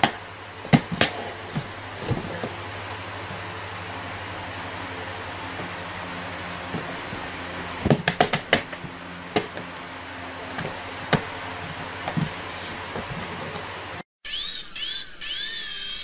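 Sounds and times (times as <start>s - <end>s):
steady background hiss: 0.0s - 14.0s
sharp knocks and clatters: 6.6s - 9.7s.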